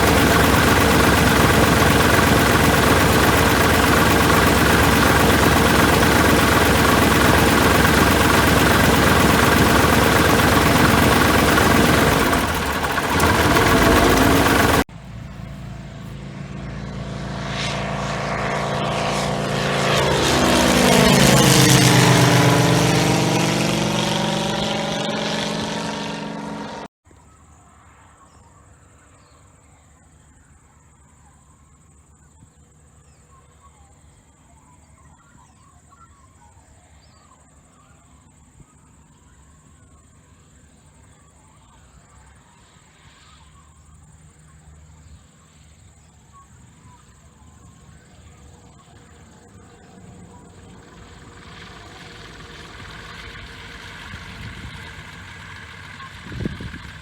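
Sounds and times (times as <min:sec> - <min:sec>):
steady high-pitched hum: 0:00.0 - 0:14.9
propeller plane passing overhead: 0:00.0 - 0:26.9, 0:46.6 - 0:57.0.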